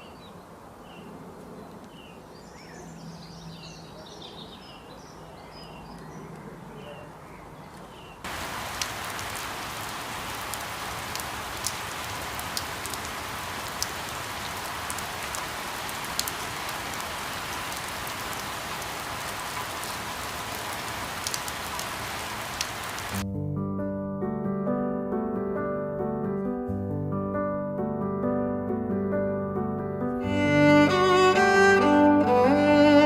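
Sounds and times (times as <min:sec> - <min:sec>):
steady rain hiss: 0:08.2 - 0:23.2, 0:30.2 - 0:33.0
raindrops ticking: 0:08.3 - 0:23.2.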